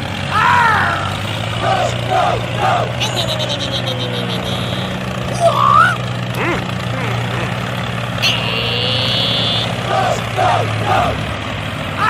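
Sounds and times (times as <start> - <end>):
rc truck engine hum: 0.0 - 12.0
squeaky pitch glides: 2.9 - 9.9.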